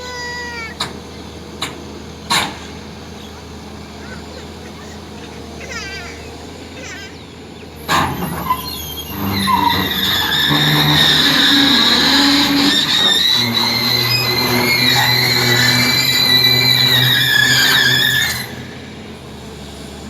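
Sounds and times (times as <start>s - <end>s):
engine with high-pitched squealing whine: 0.0s - 20.0s
loud metal clank: 0.8s - 3.0s.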